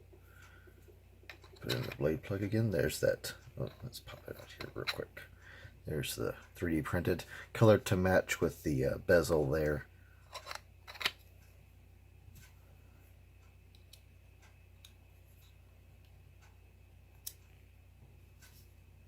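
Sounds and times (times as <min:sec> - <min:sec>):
low steady hum: 0:00.0 - 0:19.0
plastic and metal parts clicking: 0:10.3 - 0:11.2.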